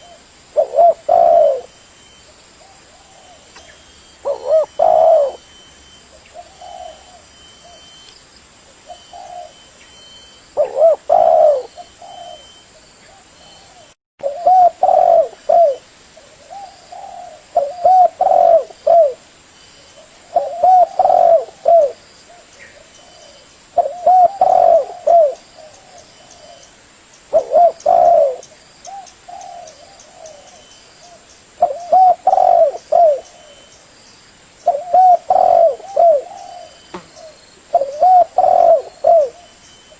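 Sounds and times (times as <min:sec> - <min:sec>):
dove cooing: 0:00.0 - 0:08.1, 0:08.9 - 0:09.7, 0:10.3 - 0:19.2, 0:20.0 - 0:26.7, 0:27.3 - 0:33.7, 0:34.6 - 0:39.9.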